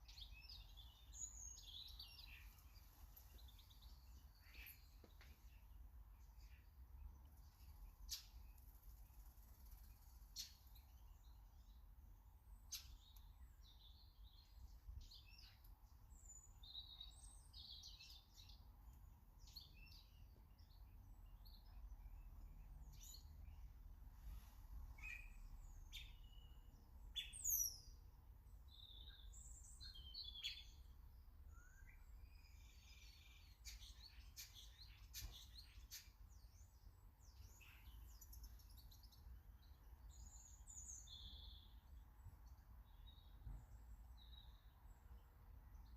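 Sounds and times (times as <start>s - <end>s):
birds chirping and twittering: 0.0s - 45.9s.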